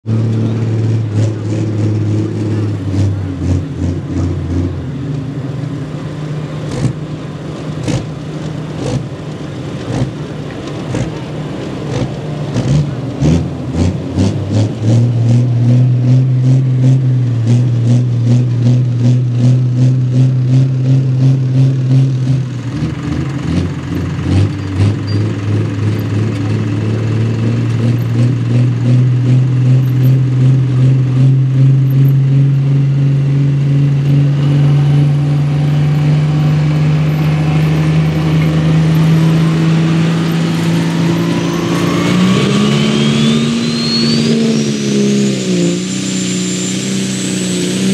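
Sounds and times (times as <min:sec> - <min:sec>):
loud diesel tractor engine: 0:00.0 - 0:47.9
rising turbo whine: 0:13.4 - 0:47.9.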